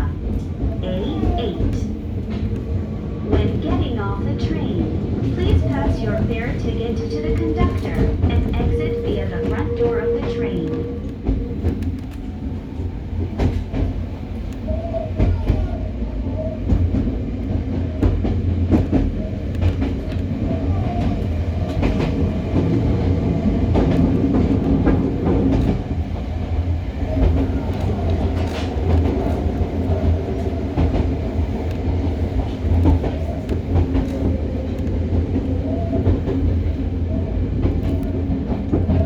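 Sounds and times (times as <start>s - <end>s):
train cabin low rumble: 0.0s - 39.0s.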